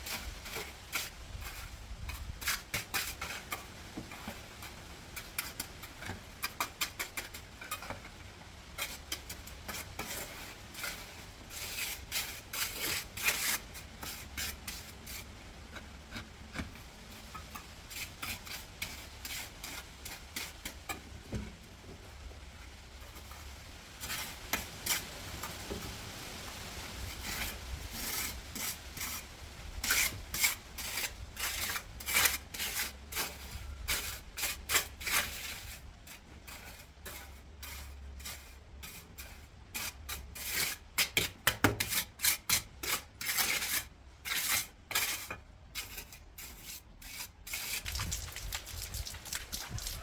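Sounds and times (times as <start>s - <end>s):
tool scraping rough surface: 41.8s - 50.0s.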